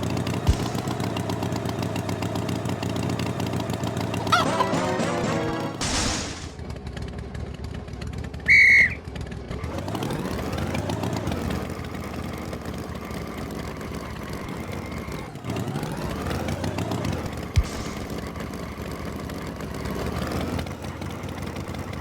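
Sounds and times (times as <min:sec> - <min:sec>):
engine low rumble: 0:00.0 - 0:22.0
high whistle toot: 0:08.4 - 0:09.0.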